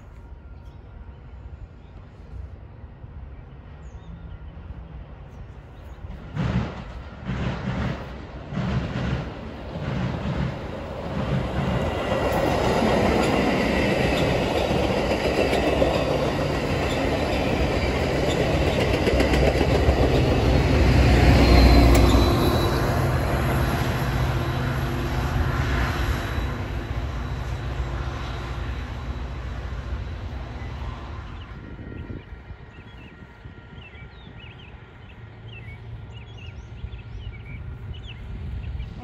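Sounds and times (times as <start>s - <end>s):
train wheels clattering on rail: 6.0s - 27.7s.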